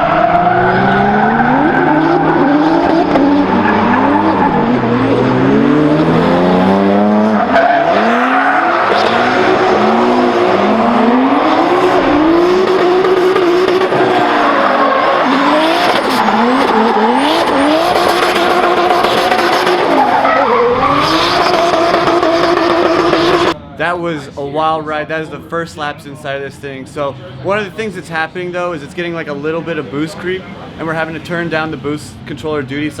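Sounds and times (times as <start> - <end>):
car engine revving hard: 0.0 - 23.6
tires squealing and skidding: 0.0 - 23.6.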